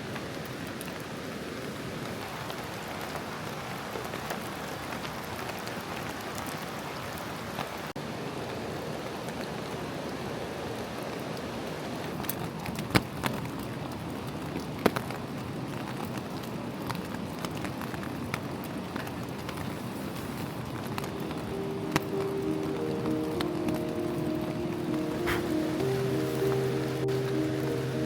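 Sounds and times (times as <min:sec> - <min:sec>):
light rain falling: 0:00.0 - 0:28.0
raindrops ticking: 0:20.6 - 0:28.0.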